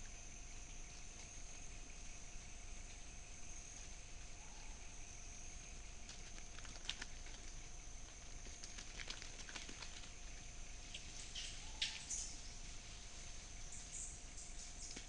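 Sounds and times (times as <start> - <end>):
high-pitched insect drone: 10.6 - 15.0.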